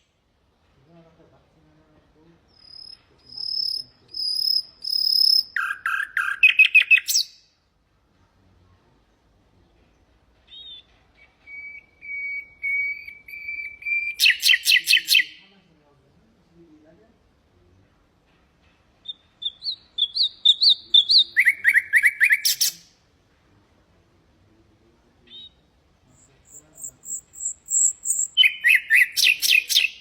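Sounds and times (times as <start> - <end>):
nightingale singing: 2.5 - 7.5, 10.5 - 15.5, 18.9 - 23.0, 25.2 - 30.0.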